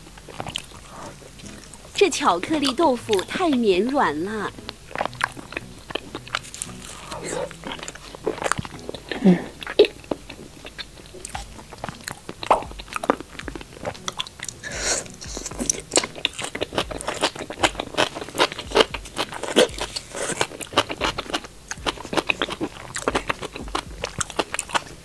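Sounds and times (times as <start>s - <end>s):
crunchy chewing: 0.0s - 25.0s.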